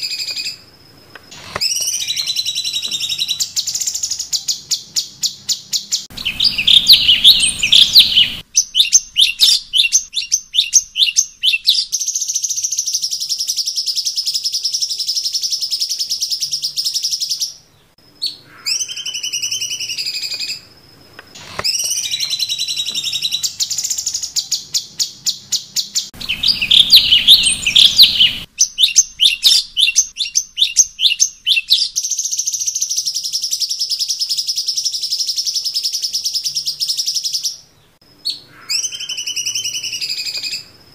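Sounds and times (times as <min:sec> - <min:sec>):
high bird trill: 0:01.3 - 0:40.8
bird chattering notes: 0:06.1 - 0:11.6, 0:26.2 - 0:31.7
sliding bird whistles: 0:06.1 - 0:11.8, 0:26.2 - 0:31.8.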